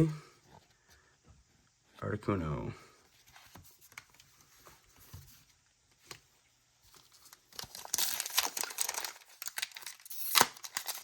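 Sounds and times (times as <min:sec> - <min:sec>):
trading cards being handled: 0:06.9 - 0:11.0.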